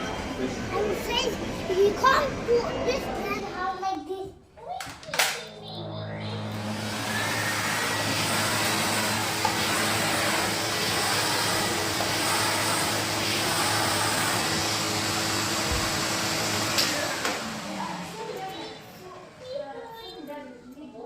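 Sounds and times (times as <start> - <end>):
vacuum cleaner motor whining: 5.7 - 19.7.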